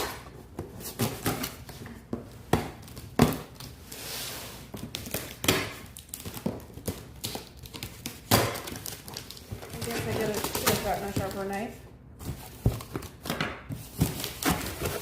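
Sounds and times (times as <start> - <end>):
knife cutting cardboard box: 13.8 - 15.0.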